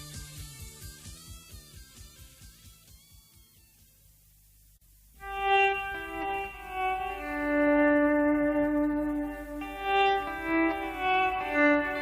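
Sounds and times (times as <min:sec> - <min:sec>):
rock band music: 0:05.2 - 0:12.0.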